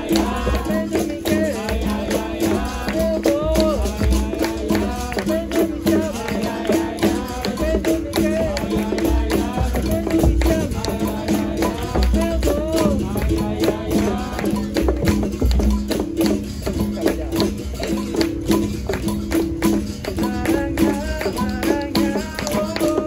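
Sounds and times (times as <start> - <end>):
low hand drum beats: 0.0 - 23.0
people singing: 0.0 - 23.0
shaker rattle: 0.0 - 23.0
tambourine jingles and strikes: 0.0 - 23.0.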